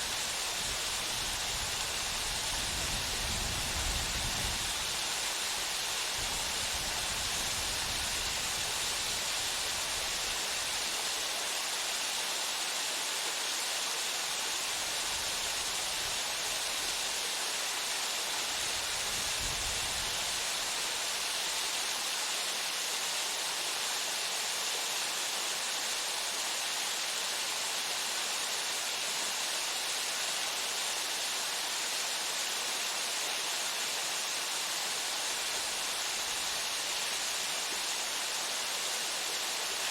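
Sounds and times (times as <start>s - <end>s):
waterfall pouring into pool: 0.0s - 39.9s.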